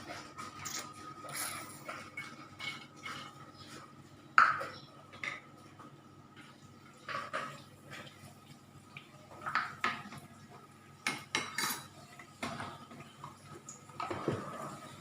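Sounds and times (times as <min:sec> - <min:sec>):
dishes and utensils clattering: 0:00.0 - 0:05.5, 0:07.0 - 0:08.1, 0:11.0 - 0:15.0.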